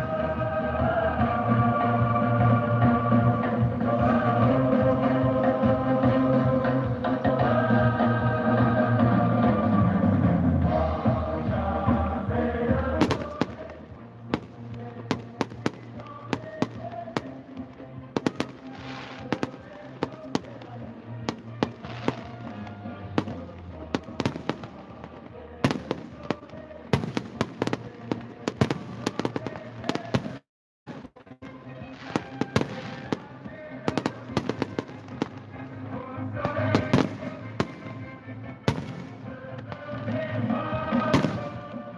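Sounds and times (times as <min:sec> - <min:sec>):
music playing: 0:00.0 - 0:30.4, 0:31.0 - 0:41.9
fireworks bangs and crackles: 0:12.7 - 0:31.1, 0:31.8 - 0:41.9.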